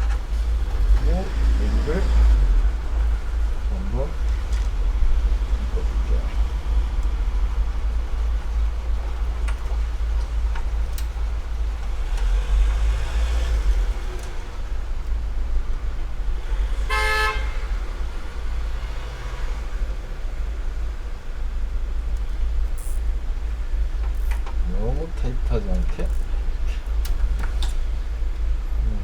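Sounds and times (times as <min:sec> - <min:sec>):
steady low hum: 0:00.0 - 0:29.0
short horn toot: 0:16.8 - 0:17.8.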